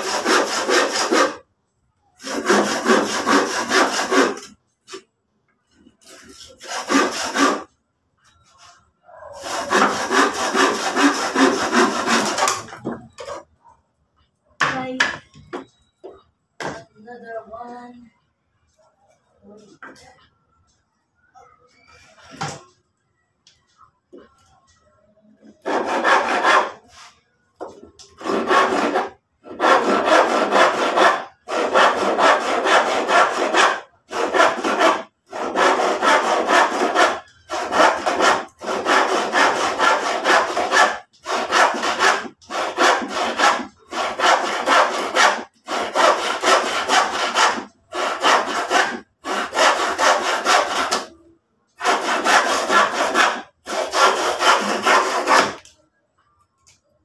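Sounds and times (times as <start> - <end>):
handsaw cutting wood: 0.0 - 1.4, 2.2 - 5.0, 6.0 - 7.7, 9.4 - 12.7, 25.6 - 27.0, 28.2 - 51.1, 51.8 - 55.6.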